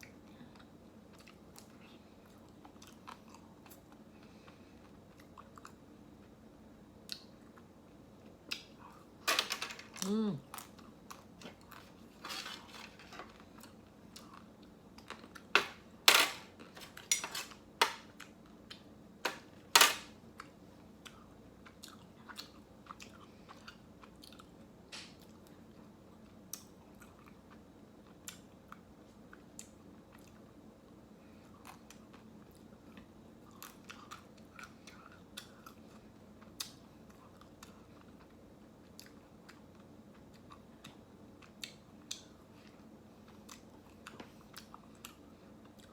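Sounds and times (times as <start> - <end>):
soft chewing and smacking: 0.0 - 9.2, 10.0 - 12.2, 13.3 - 15.5, 18.1 - 18.9, 20.3 - 45.9.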